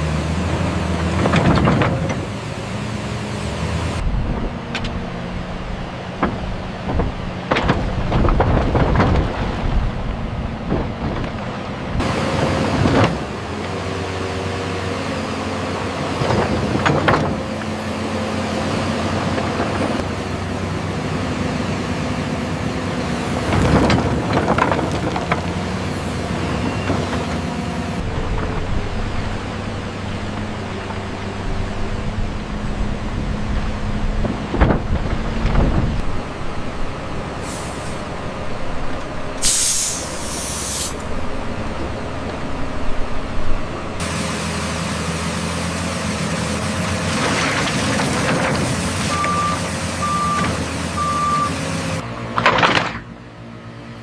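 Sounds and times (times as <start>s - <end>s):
excavator diesel engine running: 0.0s - 54.0s
machine knocks and clanks: 6.1s - 9.6s
loud sharp hiss: 37.4s - 38.1s, 39.4s - 41.0s.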